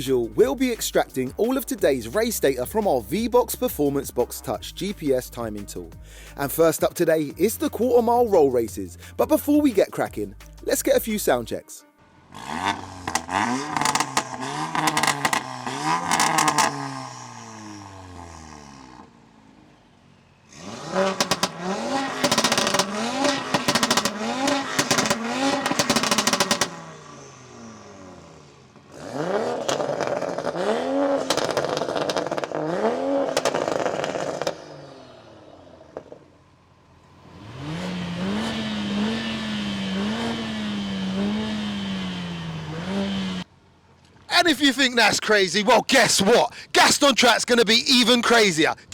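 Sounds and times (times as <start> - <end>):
exhaust crackles and pops: 12.3 - 19.1, 20.5 - 26.9, 28.7 - 34.8
car engine revving: 12.3 - 36.2, 37.2 - 43.5.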